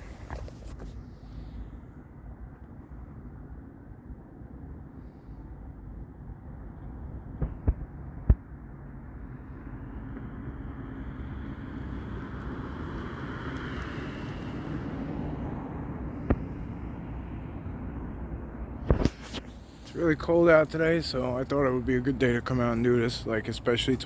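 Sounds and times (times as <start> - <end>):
vehicle passing: 9.4 - 24.0.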